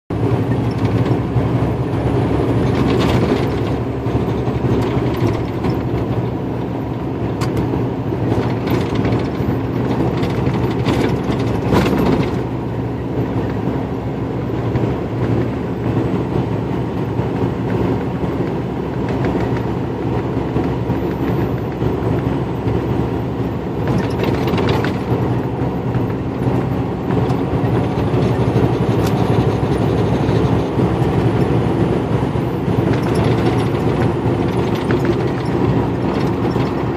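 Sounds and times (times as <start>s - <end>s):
truck engine and road noise: 0.1s - 36.9s
short rattles and knocks: 0.5s - 1.5s, 2.4s - 6.7s, 7.3s - 12.6s, 23.8s - 36.9s.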